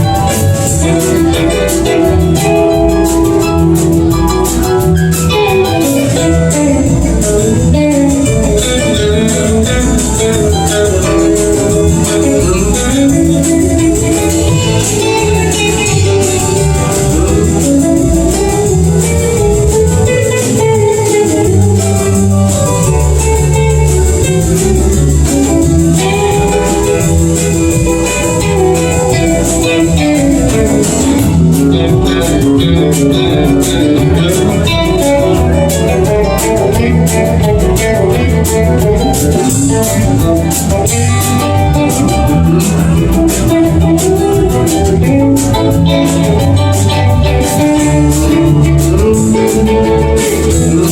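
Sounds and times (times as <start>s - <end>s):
bass line: 0.0s - 50.9s
lead guitar: 0.0s - 50.9s.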